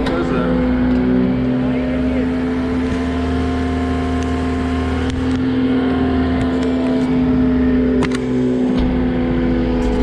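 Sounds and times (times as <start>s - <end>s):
diesel engine at high idle: 0.0s - 10.0s.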